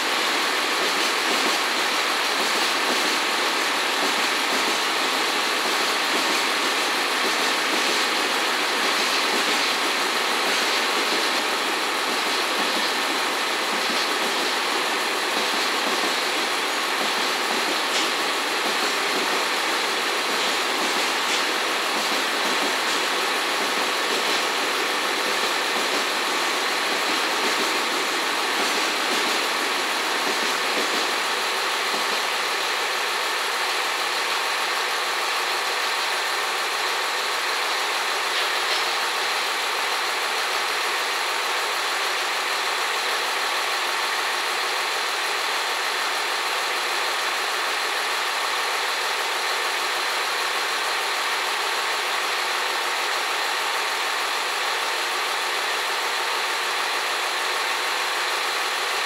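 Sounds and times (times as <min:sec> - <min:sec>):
diesel railcar idling: 0:00.0 - 0:59.0
freight train wagons rolling past: 0:00.1 - 0:41.8.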